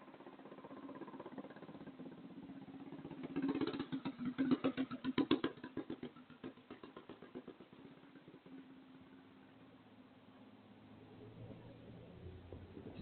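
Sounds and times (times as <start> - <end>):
small motorbike engine running: 0.0 - 9.5.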